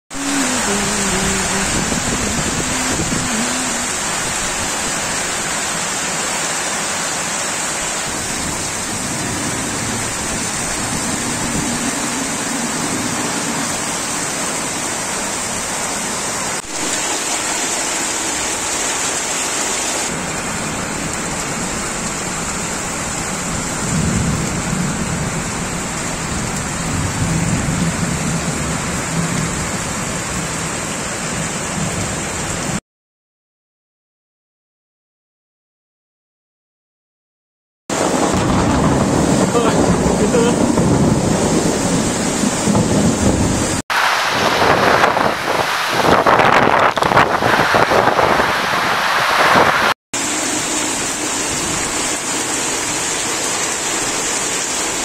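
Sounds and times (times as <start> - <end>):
heavy rain on concrete and plants: 0.1 - 32.8, 37.9 - 55.0
low rumbling: 8.5 - 14.8.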